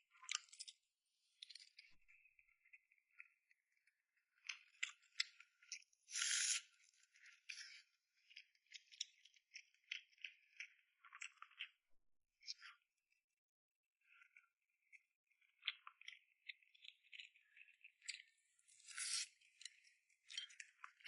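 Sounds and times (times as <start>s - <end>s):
crunchy food being chewed: 0.1s - 0.8s, 4.4s - 11.8s, 14.1s - 21.0s.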